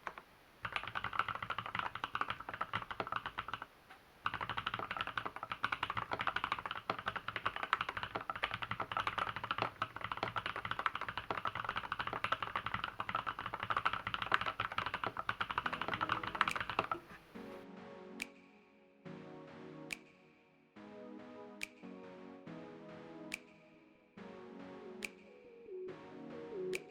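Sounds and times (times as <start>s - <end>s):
fast typing on mechanical keyboard: 0.0s - 17.0s
music: 15.6s - 26.9s.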